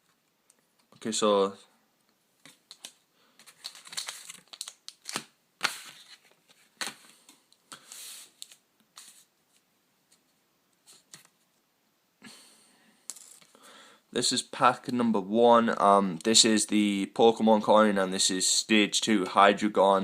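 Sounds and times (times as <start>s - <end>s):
card packaging tearing and crinkling: 2.7s - 7.0s.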